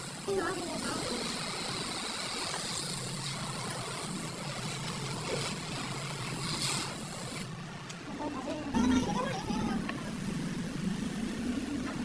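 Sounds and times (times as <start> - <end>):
machine hiss: 0.0 - 7.5.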